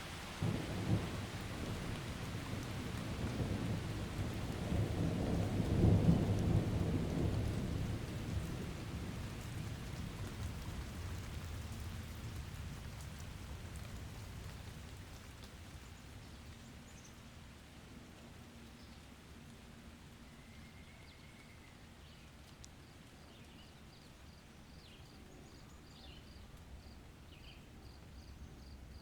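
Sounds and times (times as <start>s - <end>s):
steady rain: 0.0s - 29.0s
rolling thunder: 0.3s - 11.2s.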